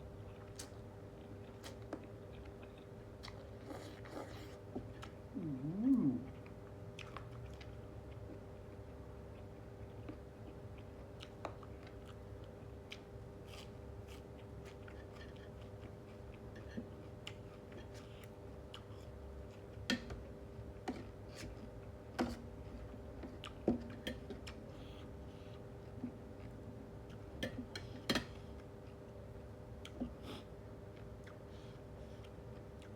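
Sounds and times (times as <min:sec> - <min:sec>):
faint hum: 0:00.0 - 0:19.8
person chewing food: 0:00.1 - 0:20.1, 0:20.7 - 0:32.9.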